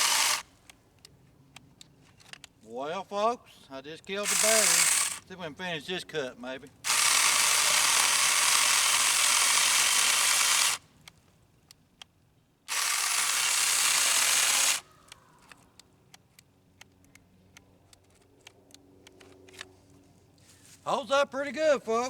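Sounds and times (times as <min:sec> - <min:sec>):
battery chainsaw running: 0:00.0 - 0:00.4, 0:04.2 - 0:05.3, 0:06.8 - 0:10.8, 0:12.7 - 0:14.9
faint clicks: 0:14.8 - 0:19.7.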